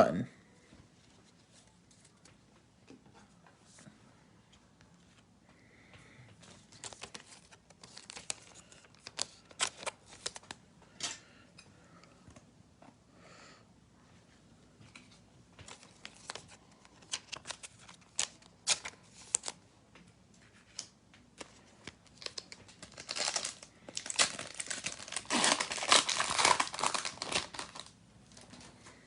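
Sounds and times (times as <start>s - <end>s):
foil pack crinkling: 6.6s - 10.6s, 15.6s - 19.6s, 21.4s - 28.6s.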